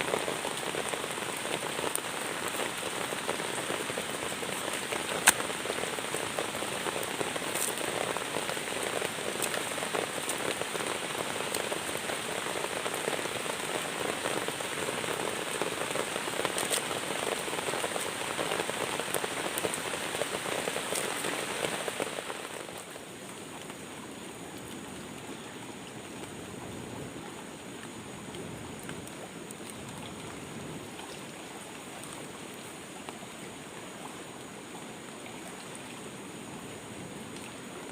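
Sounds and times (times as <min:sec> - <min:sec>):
steady rain on a surface: 0:00.0 - 0:37.9.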